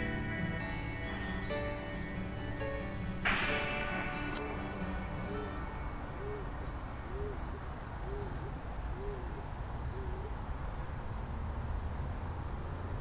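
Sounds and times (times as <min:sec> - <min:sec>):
bird hooting: 0:06.2 - 0:10.4.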